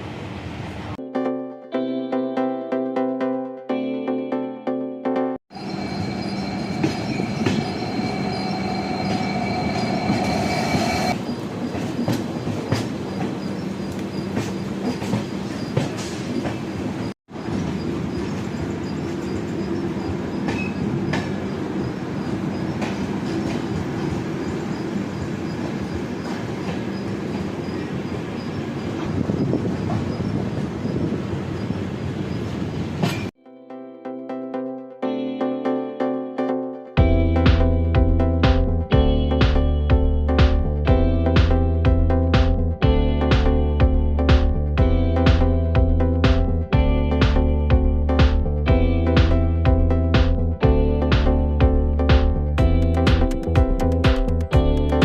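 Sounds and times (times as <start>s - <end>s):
train rumbling on rails: 0.0s - 1.0s, 5.5s - 33.4s
train wheels squealing: 5.5s - 33.3s.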